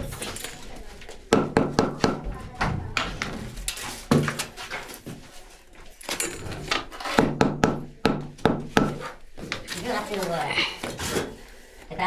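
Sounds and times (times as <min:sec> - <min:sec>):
construction knocks and thuds: 0:00.0 - 0:05.2, 0:06.4 - 0:09.7.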